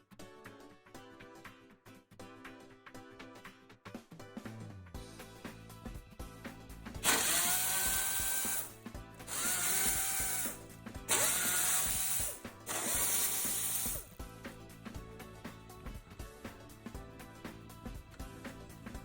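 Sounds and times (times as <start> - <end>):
background music: 0.0 - 19.0
power tool whining: 7.0 - 8.7, 9.3 - 14.1.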